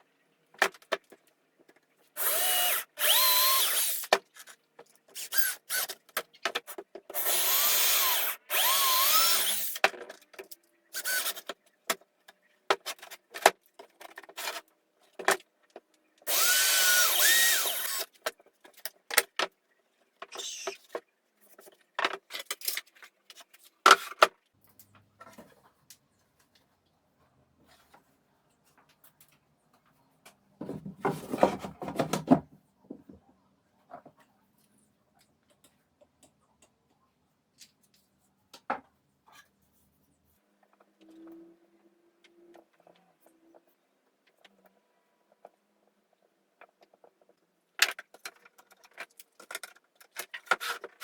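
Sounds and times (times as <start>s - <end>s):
electric drill whine: 2.2s - 4.0s, 7.2s - 9.8s, 16.3s - 18.0s.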